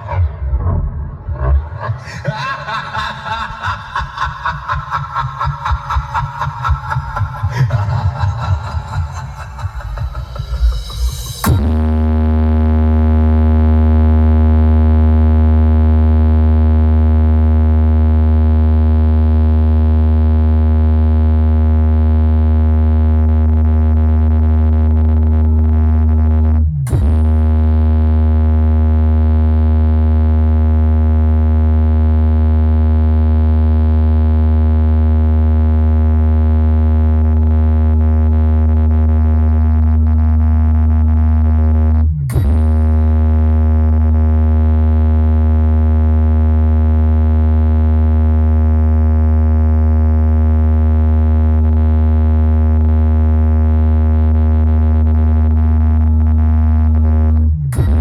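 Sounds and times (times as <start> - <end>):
heavy synthesized bass tone: 0.0 - 58.0.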